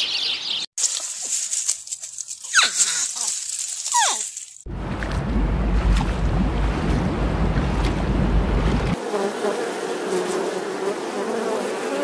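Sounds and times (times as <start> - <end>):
sea water rushing: 4.7 - 9.0
bee buzzing: 8.7 - 12.0.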